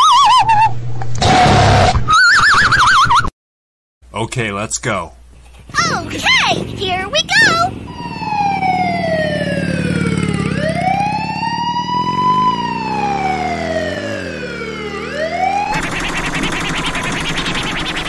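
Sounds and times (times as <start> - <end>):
low engine drone: 5.5 - 18.0
siren wailing: 7.2 - 18.0.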